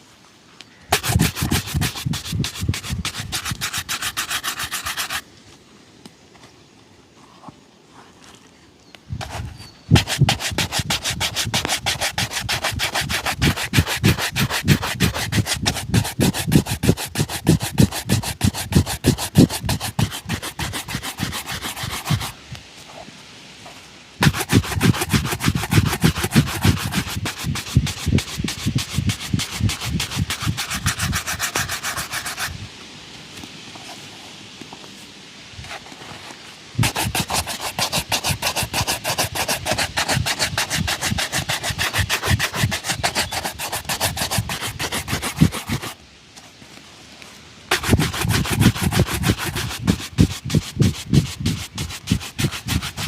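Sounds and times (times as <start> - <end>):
shoe buffing strokes: 0.9 - 5.2, 9.2 - 23.0, 24.2 - 32.7, 35.6 - 46.0, 47.7 - 53.0.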